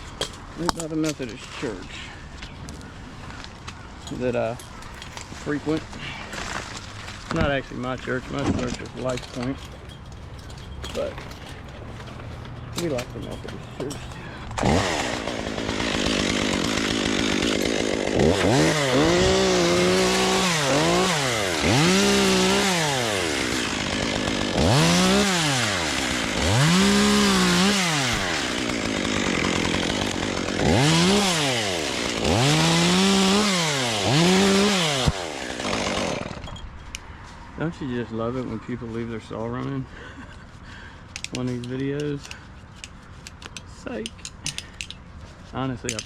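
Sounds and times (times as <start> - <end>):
chainsaw revving: 14.5 - 36.5.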